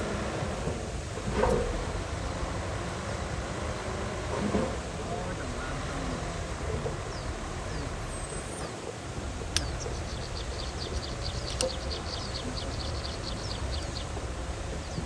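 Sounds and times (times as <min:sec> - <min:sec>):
heavy machinery engines rumbling: 0:00.0 - 0:15.0
sharp clicks: 0:09.5 - 0:14.3
bird chirping rapidly: 0:09.5 - 0:15.0.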